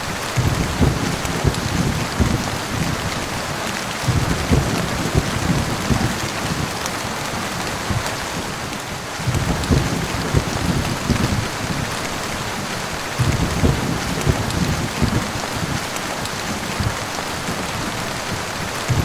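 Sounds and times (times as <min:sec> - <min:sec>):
heavy rain: 0:00.0 - 0:19.0
thunder rumbles: 0:00.0 - 0:19.0.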